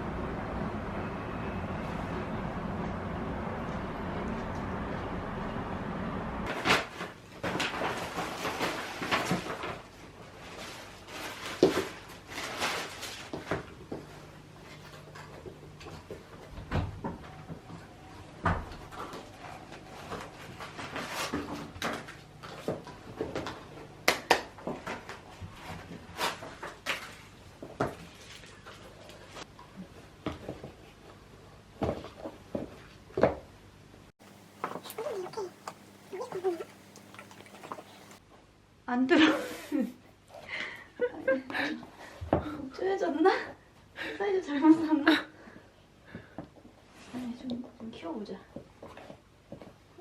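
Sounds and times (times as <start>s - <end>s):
objects being handled: 34.2s - 38.2s.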